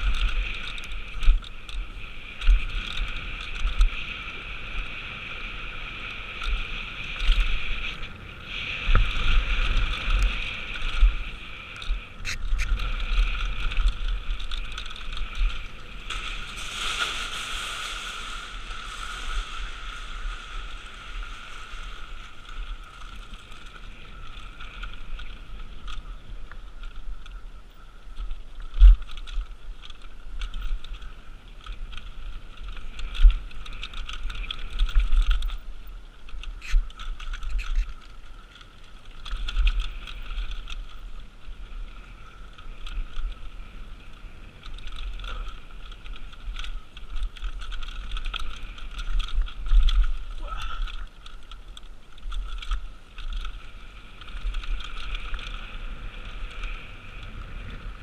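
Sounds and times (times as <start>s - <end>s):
bike hub buzzing: 0.0s - 16.8s
bike rattle and rumble: 0.0s - 58.0s
wind: 0.0s - 58.0s.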